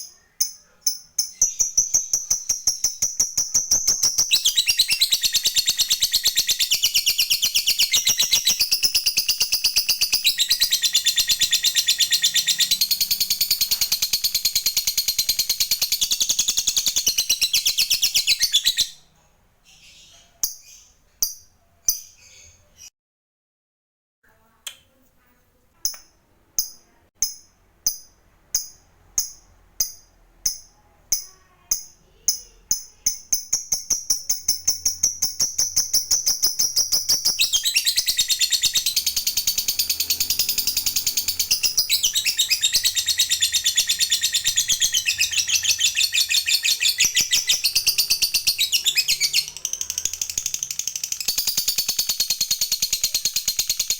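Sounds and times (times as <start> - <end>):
lovebird shrill chirps: 0.0 - 19.1, 31.2 - 53.9.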